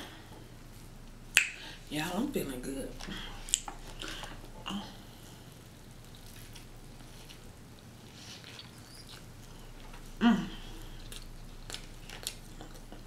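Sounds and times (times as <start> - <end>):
person chewing: 3.0 - 13.0.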